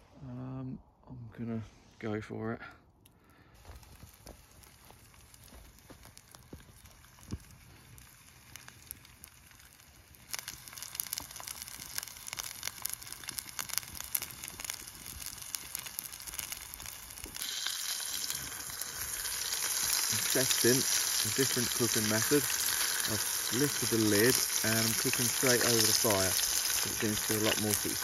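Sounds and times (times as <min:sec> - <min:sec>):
fat crackling and spitting: 0:03.0 - 0:28.0
burger patty sizzling in a pan: 0:03.6 - 0:28.0.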